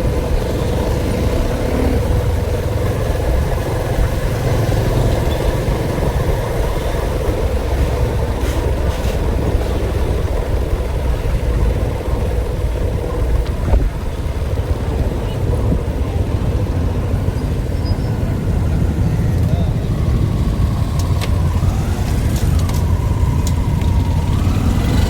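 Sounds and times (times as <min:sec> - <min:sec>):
steady drone: 0:00.0 - 0:25.0
vehicle engine running: 0:00.0 - 0:25.0.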